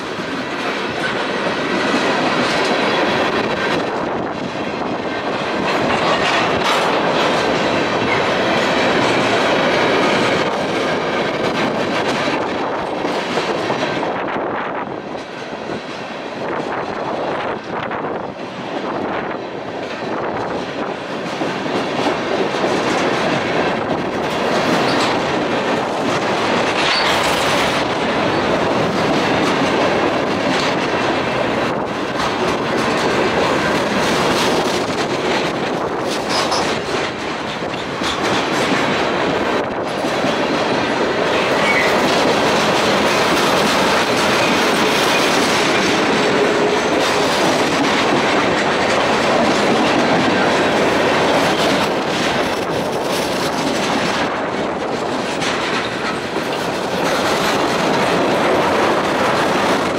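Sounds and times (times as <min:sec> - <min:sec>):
steel wheels clattering on rails: 0:00.0 - 0:59.9.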